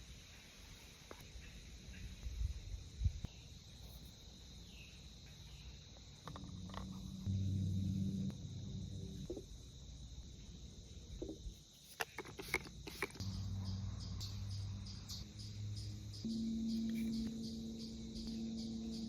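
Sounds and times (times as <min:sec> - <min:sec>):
crickets chirping: 0:00.0 - 0:19.0
low steady hum: 0:05.2 - 0:11.6, 0:13.0 - 0:19.0.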